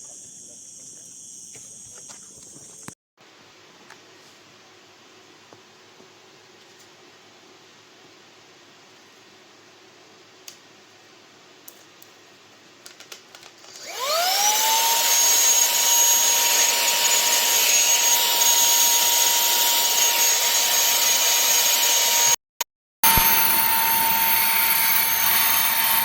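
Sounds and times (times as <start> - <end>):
handheld vacuum motor whining: 13.7 - 22.4, 23.0 - 26.0.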